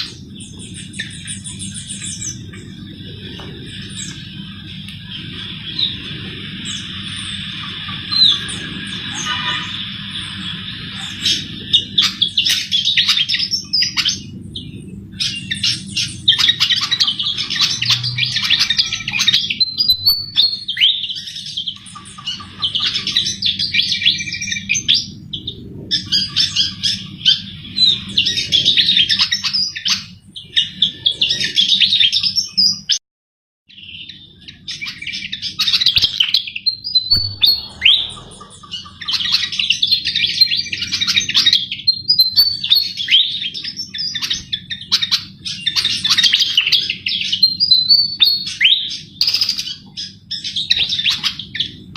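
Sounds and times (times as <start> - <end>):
bird singing warbling phrases: 0.0 - 33.0, 33.7 - 51.9
faint low hum: 34.4 - 41.2.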